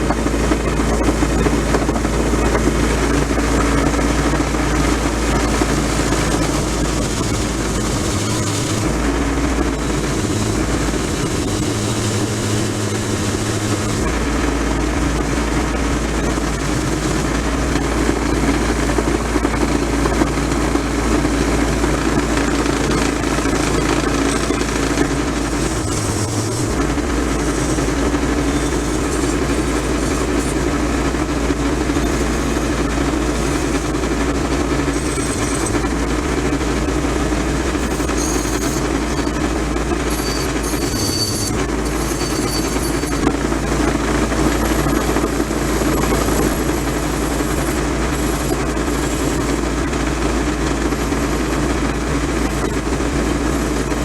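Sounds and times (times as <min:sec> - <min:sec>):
constant low hum: 0:00.0 - 0:54.0
machine rushing noise: 0:21.1 - 0:49.6.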